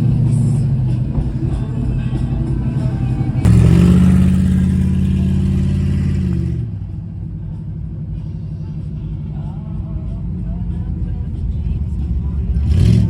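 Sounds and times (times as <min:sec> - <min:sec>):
car engine revving high: 0:00.0 - 0:06.7, 0:12.6 - 0:13.0.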